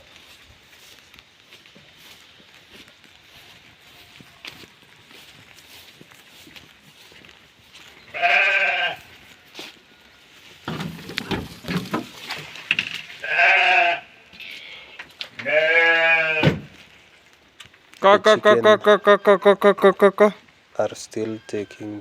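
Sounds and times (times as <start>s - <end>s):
sheep bleating: 8.1s - 9.1s, 13.2s - 14.2s, 15.4s - 16.6s, 18.0s - 20.4s, 21.0s - 22.0s
rustling and knocks: 10.6s - 13.2s.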